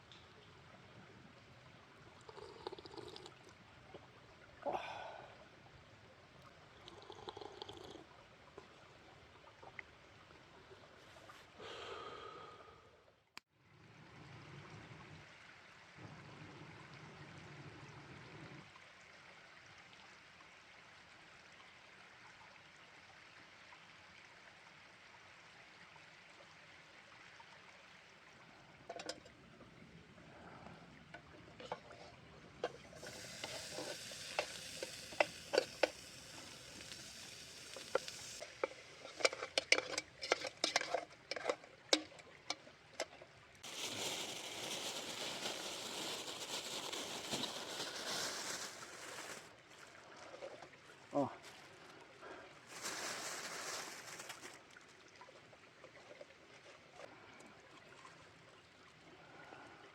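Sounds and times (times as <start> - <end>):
food sizzling in a pan: 33.0 - 41.4
utensil clicking while stirring: 37.8 - 42.6.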